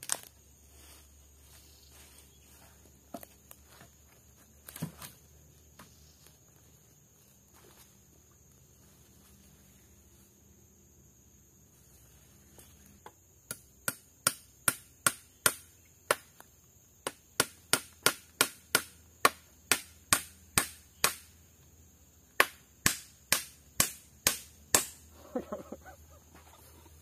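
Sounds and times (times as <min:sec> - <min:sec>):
hand tool sharp blows: 0:22.4 - 0:25.0.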